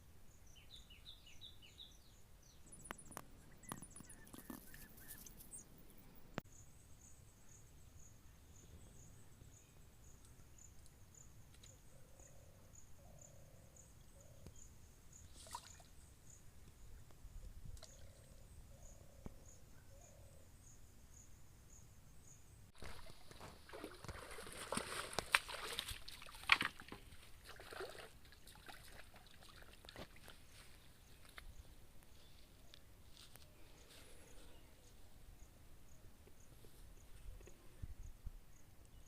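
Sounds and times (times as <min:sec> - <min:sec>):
insect chirping: 0:00.3 - 0:32.7
water splashing and sloshing: 0:22.8 - 0:30.6.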